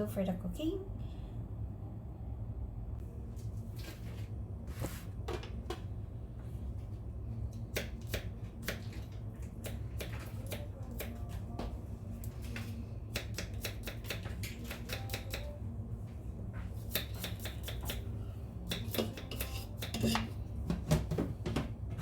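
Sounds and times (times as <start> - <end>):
steady low hum: 0.0 - 22.0
knife chopping on cutting board: 16.9 - 18.0, 18.7 - 21.7.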